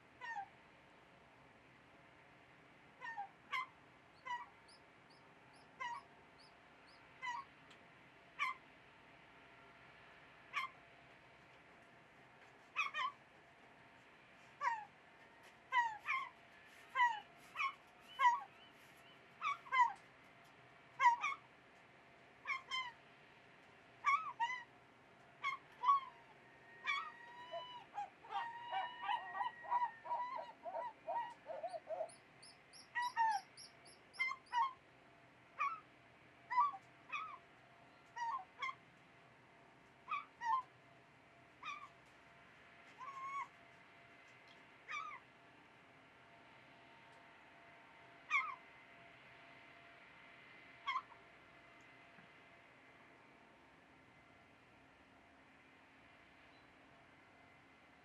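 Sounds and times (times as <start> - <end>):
faint steady background noise: 0.0 - 58.0
birds calling: 26.8 - 34.7.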